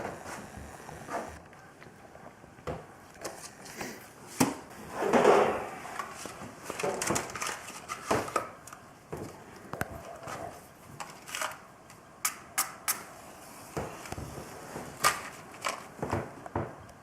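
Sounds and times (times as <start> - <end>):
crinkling rustle: 5.9 - 12.0, 13.9 - 16.5.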